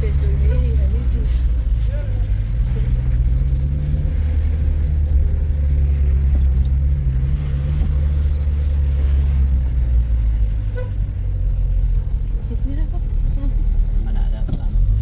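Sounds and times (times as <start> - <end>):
car engine hum: 0.0 - 15.0
road noise: 0.0 - 15.0.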